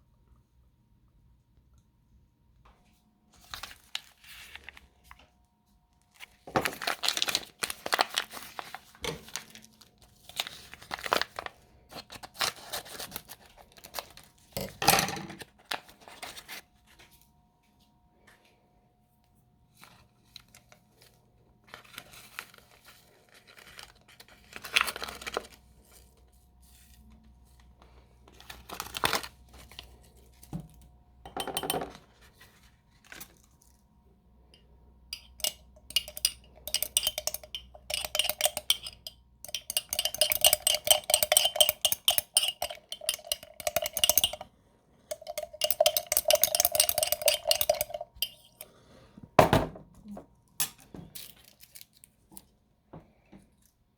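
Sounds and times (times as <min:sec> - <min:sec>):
kitchen knocks and clinks: 0:14.6 - 0:15.4, 0:31.3 - 0:32.0
spoon stirring in a glass: 0:31.3 - 0:32.0, 0:35.1 - 0:44.5, 0:45.1 - 0:48.7.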